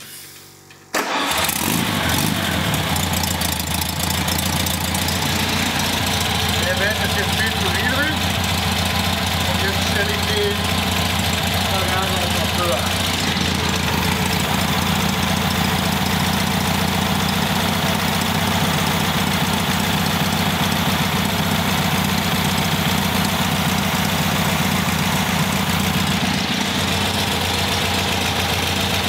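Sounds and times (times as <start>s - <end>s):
car engine idling: 1.1s - 29.0s.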